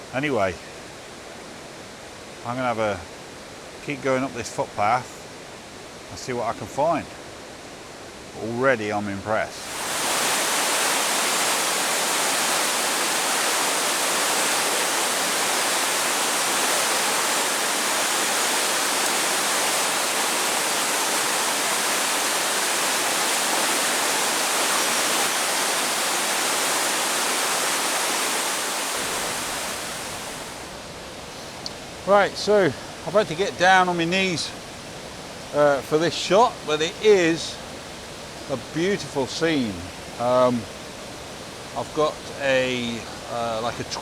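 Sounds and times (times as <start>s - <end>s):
water rushing over rocks: 9.6s - 44.0s.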